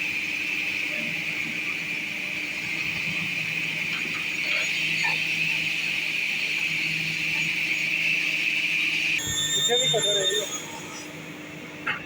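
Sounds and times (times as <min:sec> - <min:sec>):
saw blade whine: 0:03.6 - 0:12.0.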